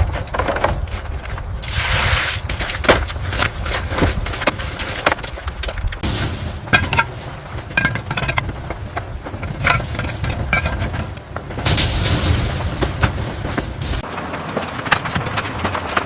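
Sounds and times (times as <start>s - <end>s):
tools knocking and clacking: 6.7s - 14.1s.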